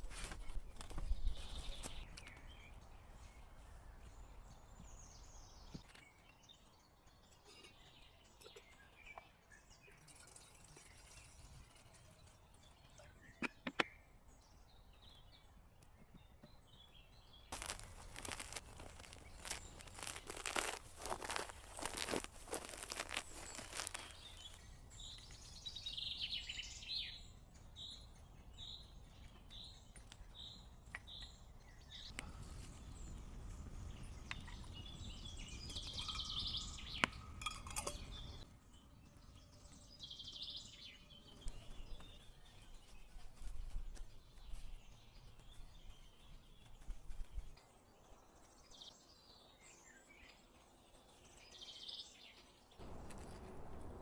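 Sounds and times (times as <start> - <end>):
birds calling: 17.5 - 24.7.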